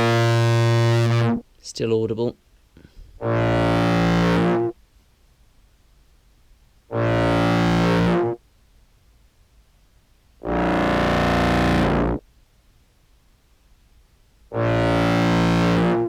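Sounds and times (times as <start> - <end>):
fuzz-distorted clarinet notes: 0.0 - 1.5, 3.2 - 4.8, 6.9 - 8.4, 10.4 - 12.2, 14.5 - 16.0.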